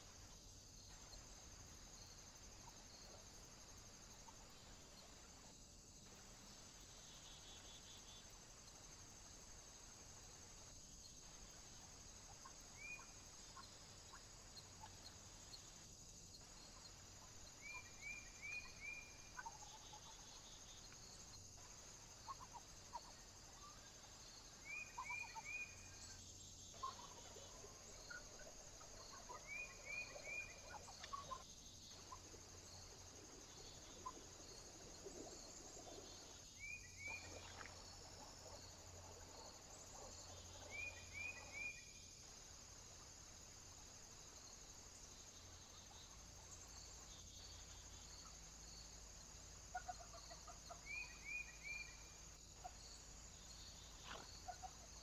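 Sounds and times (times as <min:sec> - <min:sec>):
steady high hiss: 0:00.0 - 0:55.0
wild bird chirps: 0:24.6 - 0:26.1, 0:26.7 - 0:41.9, 0:53.9 - 0:55.0.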